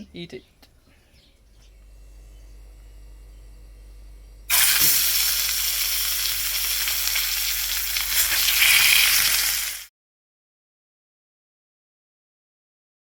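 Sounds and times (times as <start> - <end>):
fish sizzling in hot oil: 4.5 - 9.9.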